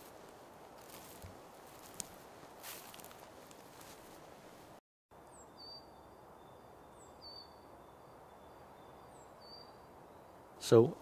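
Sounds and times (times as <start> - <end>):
quiet forest ambience: 0.0 - 11.0
small songbird calls: 5.3 - 10.5.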